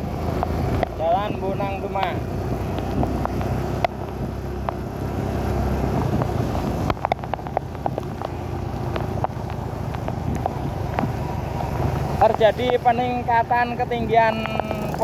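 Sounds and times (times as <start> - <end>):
vehicle engine running: 0.0 - 15.0
sharp ticks and knocks: 6.2 - 11.2, 14.3 - 15.0.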